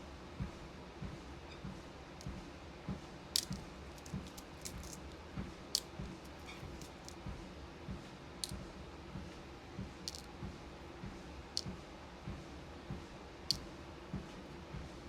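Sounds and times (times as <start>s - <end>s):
beads clicking: 3.4s - 5.2s, 5.8s - 7.2s, 10.1s - 10.3s.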